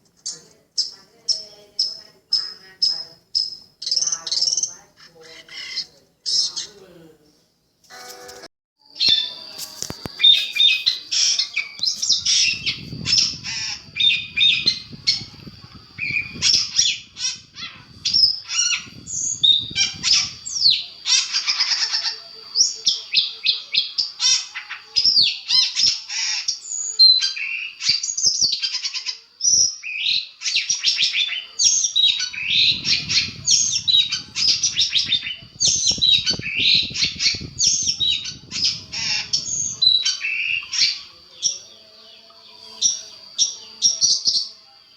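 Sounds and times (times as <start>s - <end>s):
shrike song with chirps and trills: 7.8s - 44.9s.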